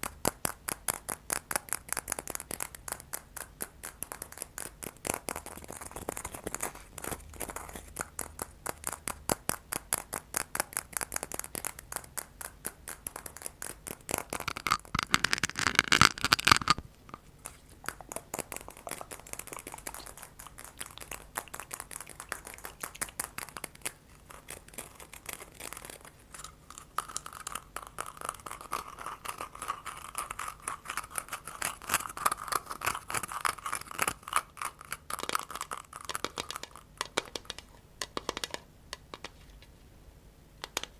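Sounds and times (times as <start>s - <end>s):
tapping and scratching on objects: 0.0s - 39.7s.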